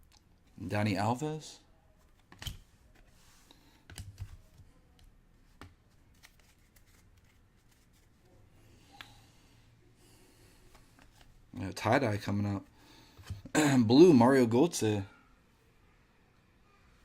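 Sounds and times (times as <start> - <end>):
trading cards clicking and rustling: 6.1 - 8.1.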